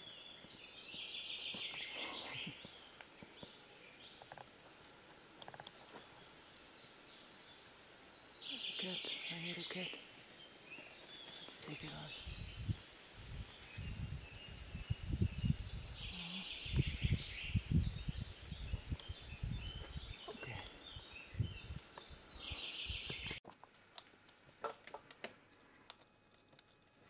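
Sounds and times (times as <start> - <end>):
songbirds singing: 0.0 - 23.4
squirrel eating clicks: 5.4 - 5.8, 23.1 - 26.9
microphone rumbling: 12.2 - 20.3.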